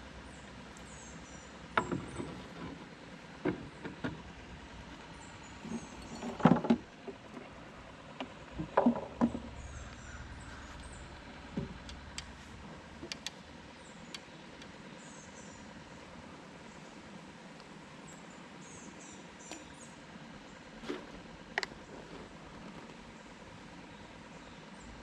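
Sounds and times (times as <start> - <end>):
faint bird chirps: 9.5 - 11.2.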